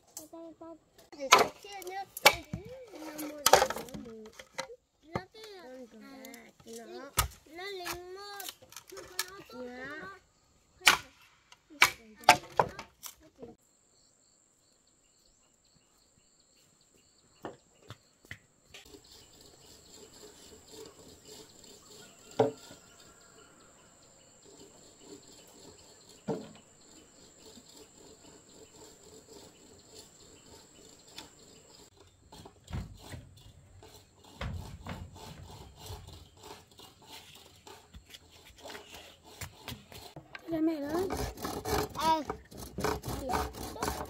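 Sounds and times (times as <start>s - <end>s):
insects trilling: 13.2s - 39.4s.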